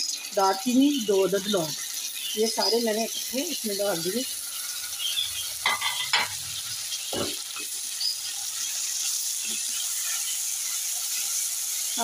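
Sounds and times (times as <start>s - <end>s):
food sizzling in hot oil: 0.0s - 12.0s
spoon scraping against pan: 4.2s - 12.0s.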